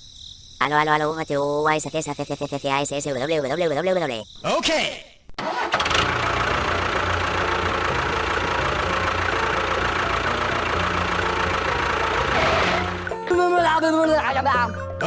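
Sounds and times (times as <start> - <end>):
small engine running: 5.4 - 13.3.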